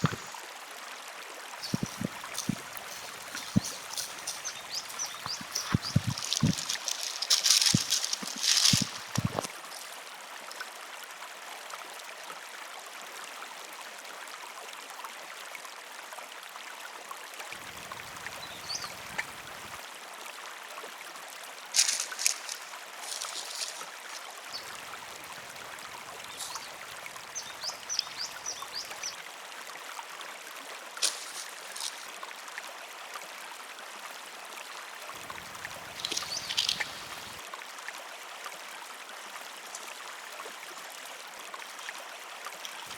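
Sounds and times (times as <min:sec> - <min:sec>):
river water flowing: 0:00.0 - 0:16.6, 0:17.2 - 0:42.9.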